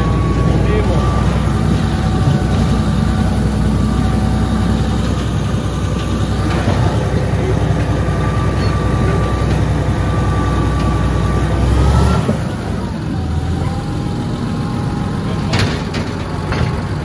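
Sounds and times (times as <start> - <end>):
bulldozer diesel engine running: 0.0 - 17.0
steady whine: 0.0 - 17.0.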